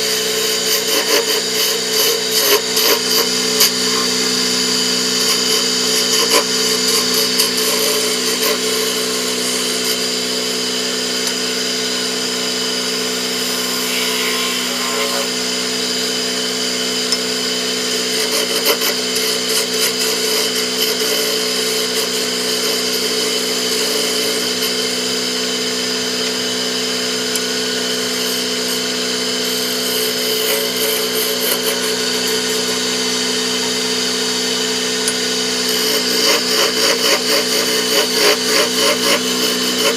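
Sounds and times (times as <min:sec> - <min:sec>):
turning tool scraping wood: 0:00.0 - 0:10.5, 0:11.1 - 0:16.2, 0:17.8 - 0:25.0, 0:29.4 - 0:33.0, 0:35.1 - 0:39.9
wood lathe motor humming: 0:00.0 - 0:39.9.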